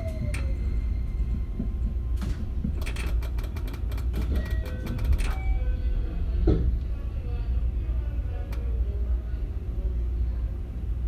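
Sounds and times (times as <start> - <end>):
train low rumble: 0.0 - 11.0
wheels clattering on track: 1.2 - 5.4.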